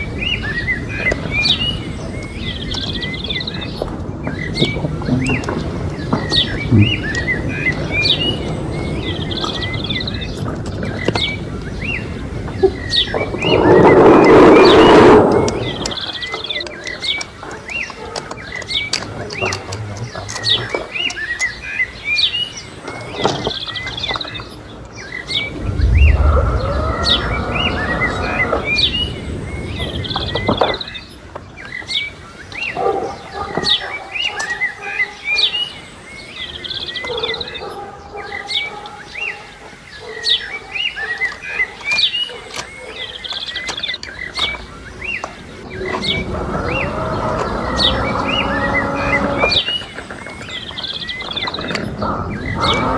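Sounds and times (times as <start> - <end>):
small birds chirping: 0.0 - 52.9
low drawn-out sound: 25.5 - 29.4.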